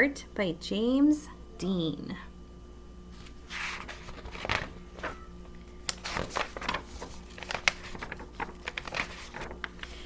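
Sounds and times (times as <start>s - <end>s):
paper rustling: 3.2s - 10.0s
book pages turning with clicks: 5.8s - 10.0s.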